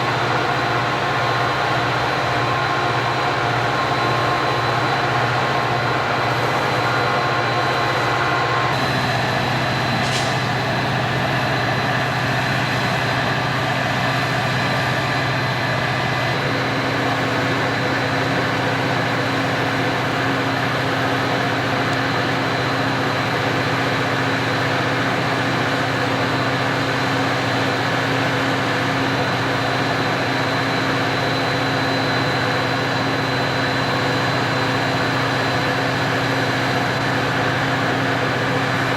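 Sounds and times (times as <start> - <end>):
train running past: 0.0 - 26.6.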